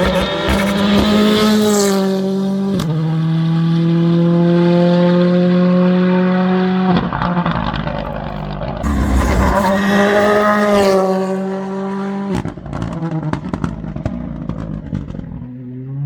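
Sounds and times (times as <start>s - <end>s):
race car engine revving: 8.8s - 12.9s.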